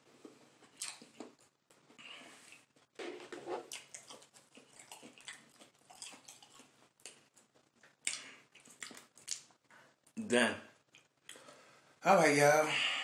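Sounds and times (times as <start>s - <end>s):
person chewing crunchy food: 0.5s - 9.5s.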